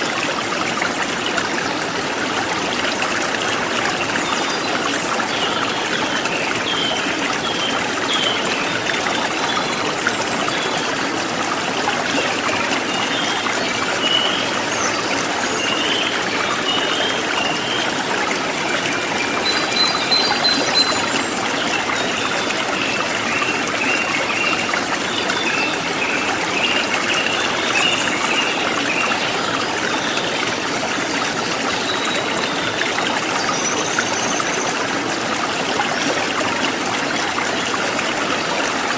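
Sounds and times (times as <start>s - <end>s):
stream trickling: 0.0s - 38.9s.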